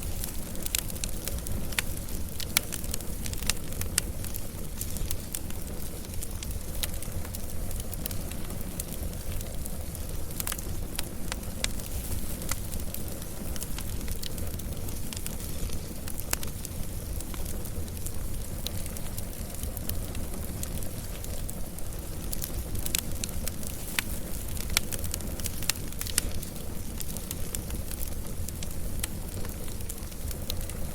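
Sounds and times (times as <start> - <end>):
fire crackling and popping: 0.0 - 30.9
wood fire low rumble: 0.0 - 30.9.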